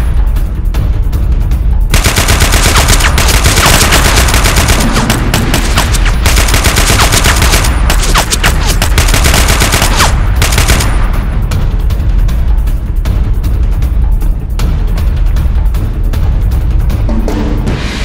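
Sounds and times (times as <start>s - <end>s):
automatic gunfire: 1.9s - 11.2s.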